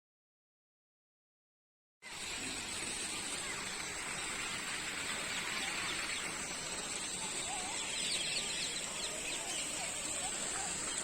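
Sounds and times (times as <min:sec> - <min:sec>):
constant high-pitched tone: 0:02.0 - 0:11.0
outdoor ambient hiss: 0:02.0 - 0:11.0
faint bird chirps: 0:03.2 - 0:11.0.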